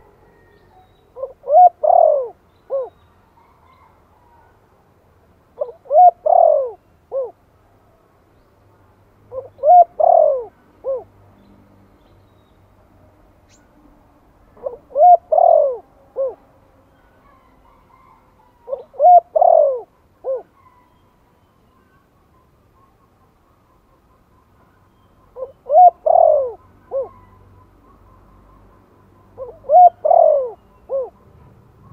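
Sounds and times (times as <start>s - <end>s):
dove cooing: 0.0s - 4.5s, 5.6s - 7.4s, 9.3s - 11.1s, 14.5s - 20.9s, 25.3s - 28.0s, 29.3s - 31.9s.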